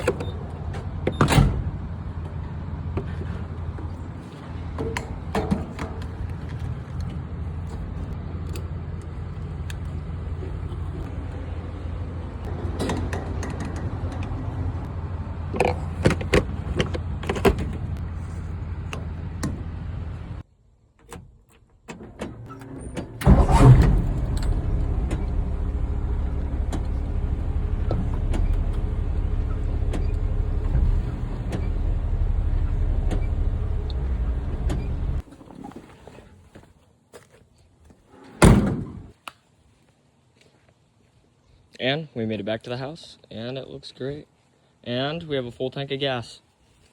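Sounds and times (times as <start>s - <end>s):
truck engine running: 0.0s - 20.4s, 22.5s - 35.2s
engine starting burst: 22.4s - 35.2s.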